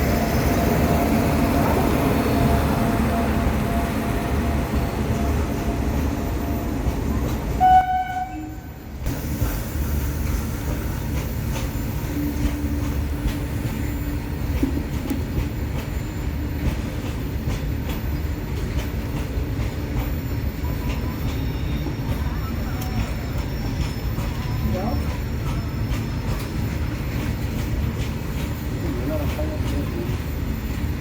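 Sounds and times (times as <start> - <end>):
freight train rumbling past: 0.0 - 31.0
train horn blast: 7.6 - 8.9
wheels clacking over rail joints: 10.2 - 31.0.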